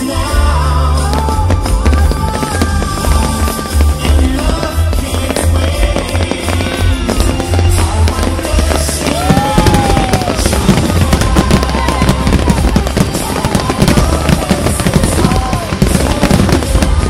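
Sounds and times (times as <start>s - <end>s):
fireworks crackling and banging: 0.0s - 17.0s.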